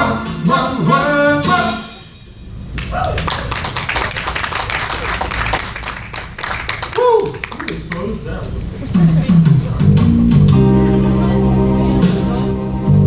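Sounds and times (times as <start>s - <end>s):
live band and singer: 0.0s - 2.1s, 9.0s - 12.7s
audience applause: 2.8s - 8.2s.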